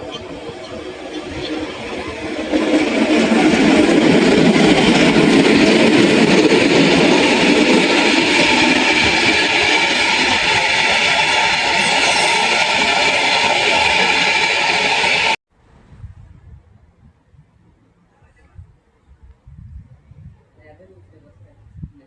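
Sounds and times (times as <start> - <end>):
train rumble and rail noise: 0.0 - 15.4
high-pitched tones: 11.0 - 15.4.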